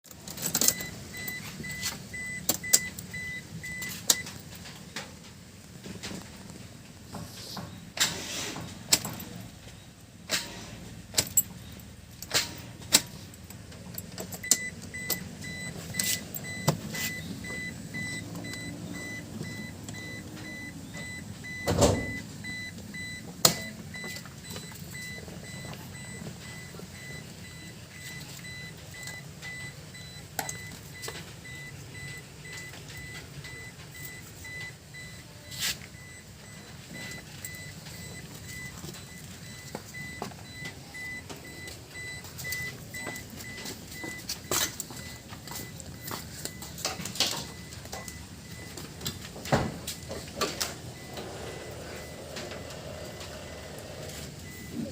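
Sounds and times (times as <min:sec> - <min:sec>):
scattered clicks and knocks: 0:00.1 - 0:09.4, 0:35.9 - 0:51.3.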